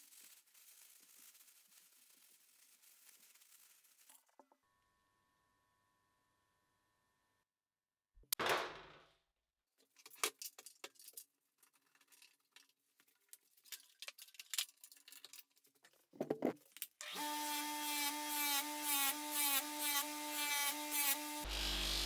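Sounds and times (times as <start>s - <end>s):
bench grinder wire wheel: 0.0s - 4.5s
metallic clinks and rattles: 9.9s - 16.8s.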